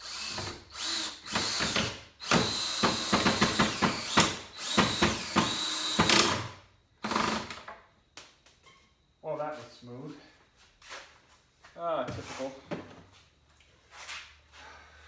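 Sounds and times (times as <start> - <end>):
power drill driving screw: 0.0 - 7.7.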